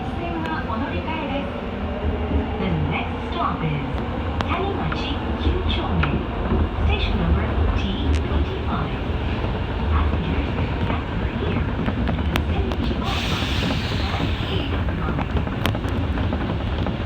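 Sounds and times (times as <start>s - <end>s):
subway train rumble in tunnel: 0.0s - 17.0s
hiss: 13.0s - 14.9s.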